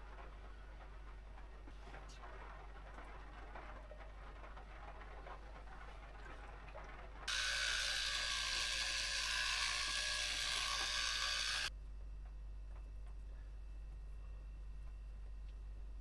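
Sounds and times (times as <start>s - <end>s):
mechanical whirring: 7.3s - 11.7s.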